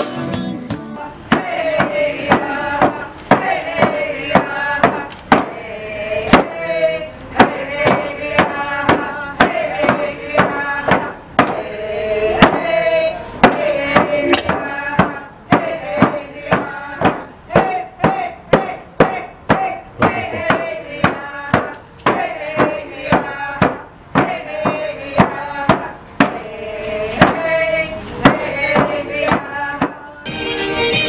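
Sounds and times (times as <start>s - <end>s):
sharp percussive knocks: 1.3s - 5.6s, 6.3s - 6.6s, 7.4s - 11.7s, 12.4s - 12.8s, 13.4s - 26.5s, 27.2s - 27.5s, 28.2s - 30.0s.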